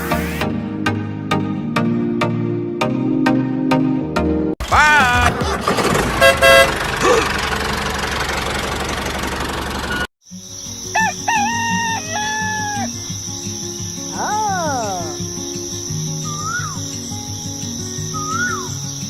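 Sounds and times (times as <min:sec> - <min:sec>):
traffic noise: 0:04.7 - 0:10.1
car horn honks: 0:06.1 - 0:07.0
cricket trill: 0:10.2 - 0:19.0
rooster crowing: 0:10.9 - 0:13.0.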